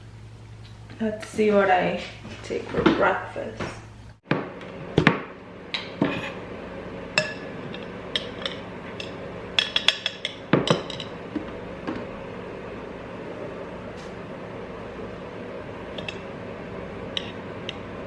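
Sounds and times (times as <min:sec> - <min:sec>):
faint steady hum: 0:00.0 - 0:18.0
kitchenware clinking and knocking: 0:08.2 - 0:11.1.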